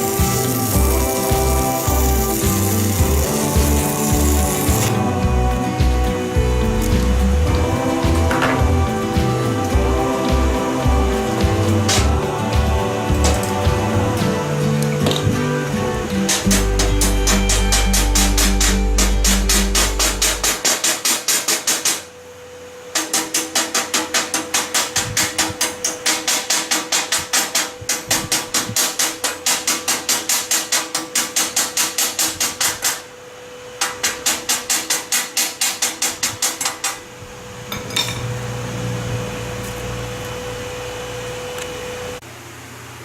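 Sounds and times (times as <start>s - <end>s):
steady noisy hum: 0.0s - 43.0s
hammer striking steel: 6.8s - 15.5s, 16.2s - 22.1s, 23.0s - 33.0s, 33.8s - 37.0s, 37.7s - 38.4s.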